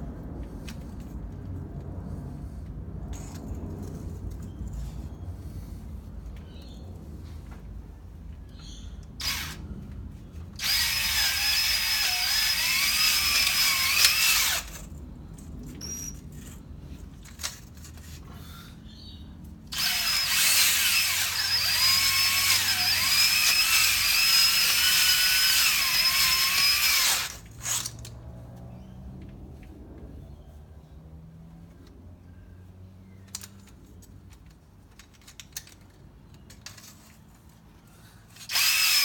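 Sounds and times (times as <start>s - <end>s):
electric drill whining: 9.2s - 9.6s, 10.6s - 14.9s, 19.7s - 27.8s, 38.4s - 39.0s.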